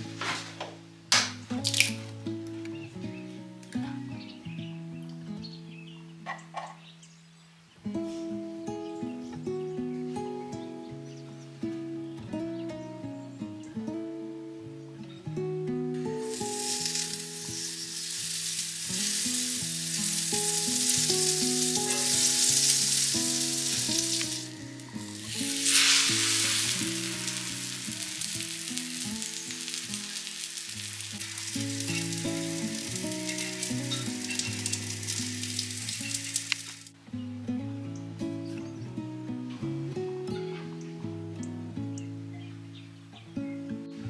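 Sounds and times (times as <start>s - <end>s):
food sizzling in a pan: 1.5s - 2.1s, 16.2s - 37.0s.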